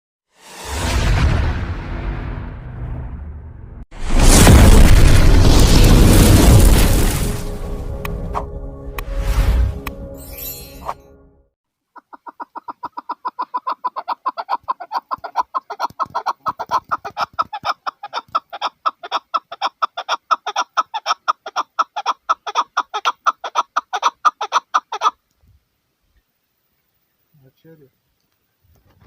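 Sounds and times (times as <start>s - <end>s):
partridge clucking calls: 12.0s - 25.2s.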